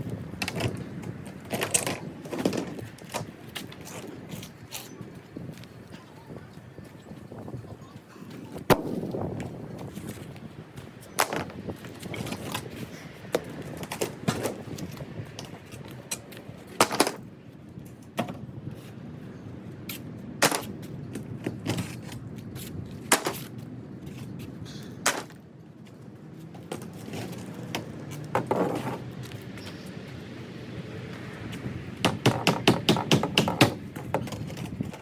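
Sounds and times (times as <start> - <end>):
wood knocking and cracking: 11.2 - 11.6, 16.8 - 17.2, 32.0 - 35.0.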